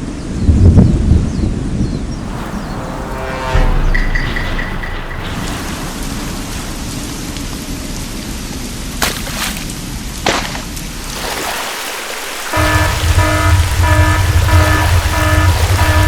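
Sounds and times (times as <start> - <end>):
sharp thunder cracks: 2.1 - 8.3
heavy rain: 2.2 - 16.0.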